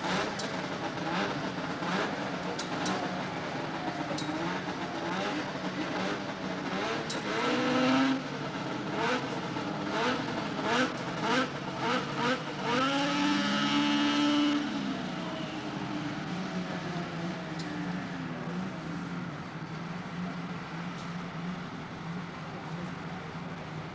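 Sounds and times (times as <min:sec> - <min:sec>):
snowmobile engine revving: 0:00.0 - 0:23.9.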